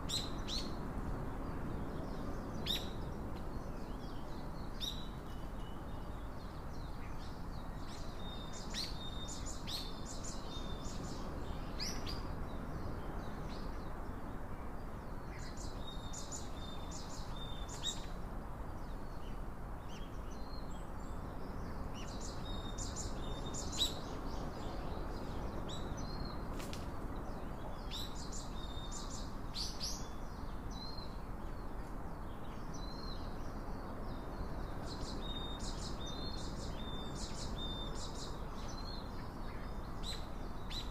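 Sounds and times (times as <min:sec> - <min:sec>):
low outdoor hiss: 0:00.0 - 0:40.9
small birds chirping: 0:18.8 - 0:40.9.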